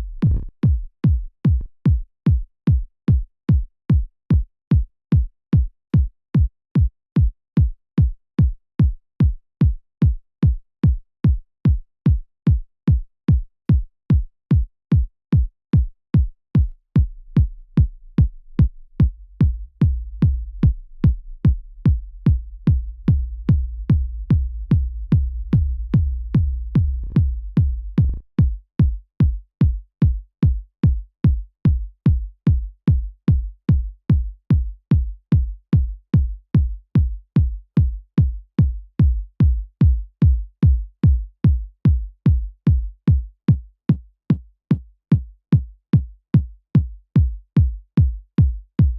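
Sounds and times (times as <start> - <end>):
electronic kick drum: 0.0 - 48.9
low sustained rumble: 16.6 - 28.3.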